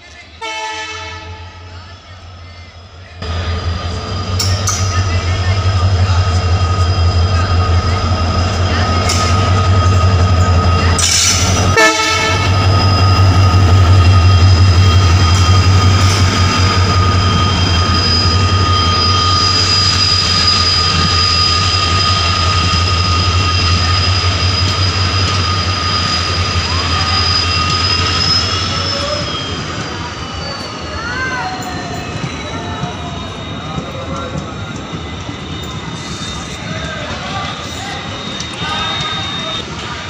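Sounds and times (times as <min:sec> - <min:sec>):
train horn blast: 0:00.4 - 0:01.7, 0:11.0 - 0:12.7
diesel locomotive throbbing: 0:00.4 - 0:40.0
train wheels squealing: 0:01.2 - 0:40.0.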